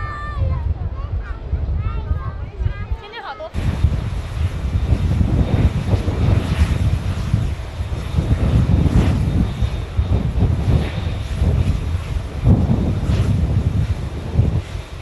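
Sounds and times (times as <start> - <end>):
aircraft engines rumbling: 0.0 - 15.0.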